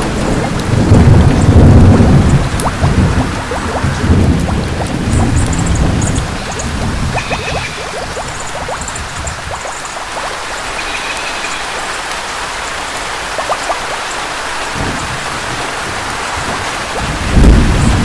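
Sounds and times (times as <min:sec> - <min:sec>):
thunder rumble: 0:00.0 - 0:09.7, 0:14.7 - 0:18.0
heavy rain hissing: 0:00.0 - 0:18.0
rain drop ticks: 0:00.0 - 0:18.0.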